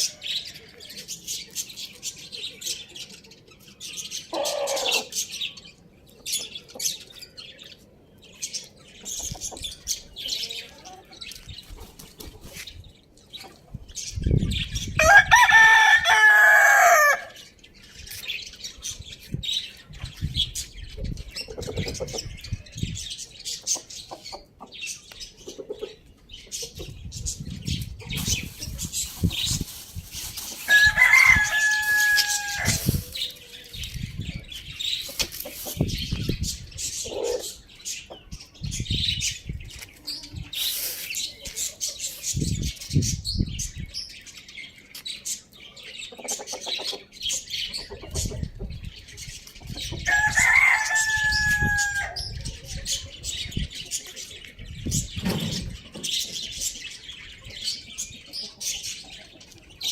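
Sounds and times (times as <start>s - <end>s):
small birds chirping: 0.0s - 15.0s, 15.8s - 59.9s
rooster crowing: 15.0s - 17.4s, 30.7s - 33.0s, 50.1s - 52.2s.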